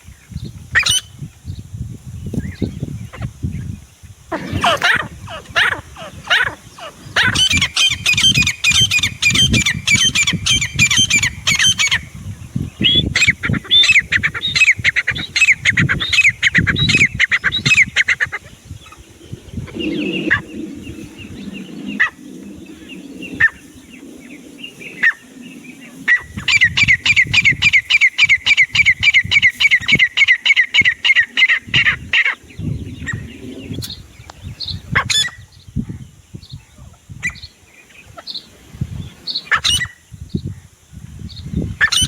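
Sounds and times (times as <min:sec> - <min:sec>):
francolin calling: 0:02.3 - 0:40.6.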